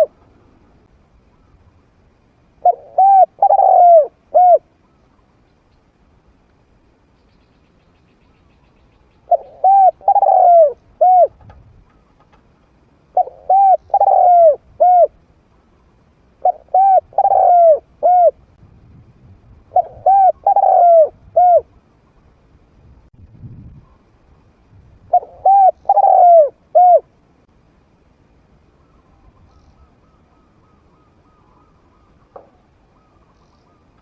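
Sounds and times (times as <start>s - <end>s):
dove cooing: 2.6s - 4.7s, 9.3s - 12.2s, 13.1s - 15.2s, 16.4s - 18.4s, 19.7s - 21.7s, 25.1s - 27.1s, 28.8s - 34.0s.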